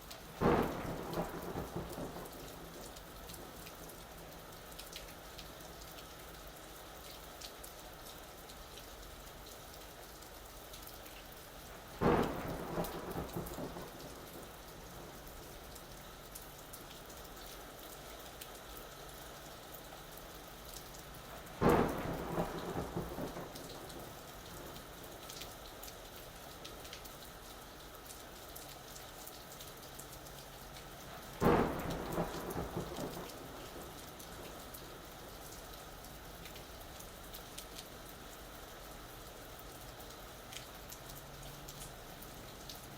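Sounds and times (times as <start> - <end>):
steady rain falling: 0.0 - 42.9
thunder claps: 0.4 - 4.0, 12.0 - 15.6, 21.5 - 24.9, 31.4 - 34.9.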